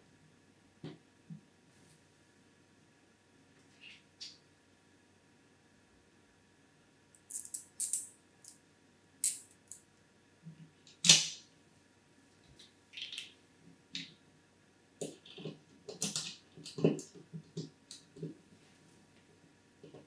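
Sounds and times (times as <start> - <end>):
screws being handled: 7.2 - 8.6.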